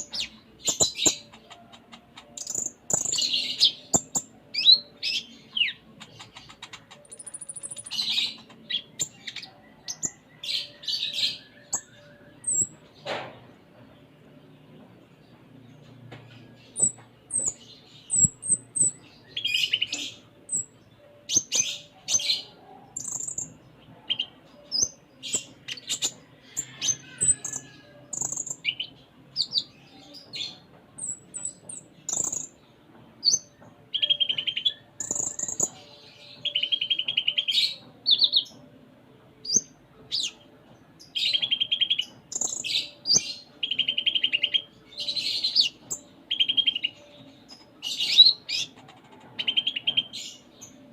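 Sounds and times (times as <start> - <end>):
buzzy rattling bird trills: 0.0 - 5.3, 6.0 - 10.2
sunbird singing high sharp chirps: 2.2 - 12.7, 33.3 - 38.5.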